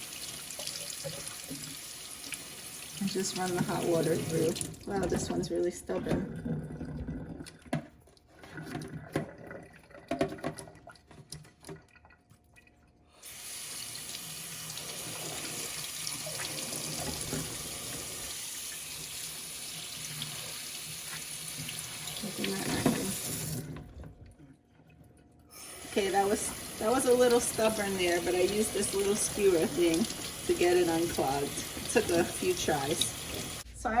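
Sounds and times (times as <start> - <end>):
tap water hissing: 0.0 - 5.4, 13.2 - 23.9, 25.5 - 33.7.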